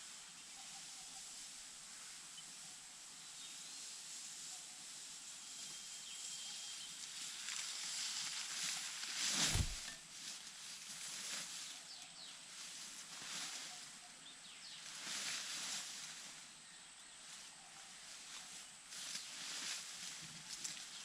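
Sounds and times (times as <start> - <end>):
rustling and scuffling: 7.9 - 11.7
dull thump: 9.4 - 9.9.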